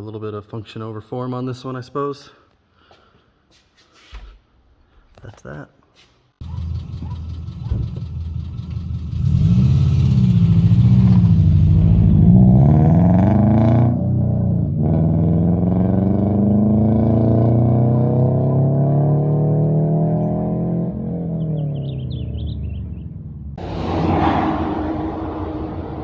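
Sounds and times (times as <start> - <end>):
car engine revving: 6.4 - 26.0.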